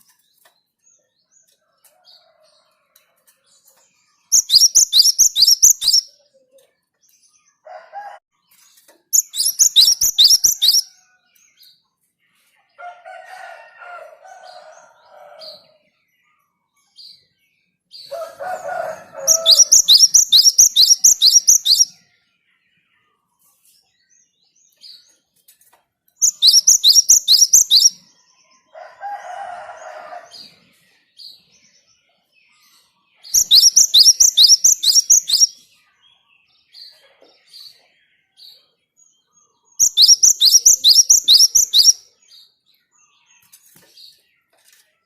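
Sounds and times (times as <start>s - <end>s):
soft bird chirps: 0.0s - 13.2s, 13.9s - 29.0s, 29.8s - 45.0s
sparrow singing high notes: 19.2s - 21.9s.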